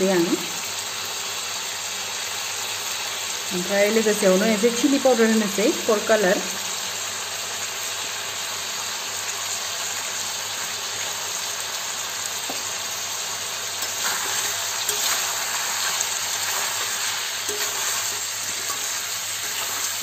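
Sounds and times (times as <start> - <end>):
chicken and potatoes sizzling: 0.0 - 20.0
spatula stirring in pan: 13.8 - 20.0.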